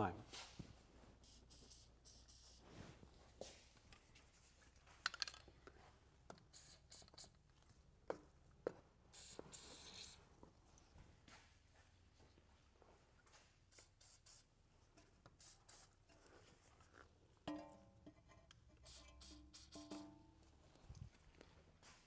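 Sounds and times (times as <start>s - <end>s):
aerosol spray hissing: 1.2s - 2.6s, 6.6s - 7.3s, 9.2s - 10.2s, 13.8s - 14.4s, 18.9s - 20.0s.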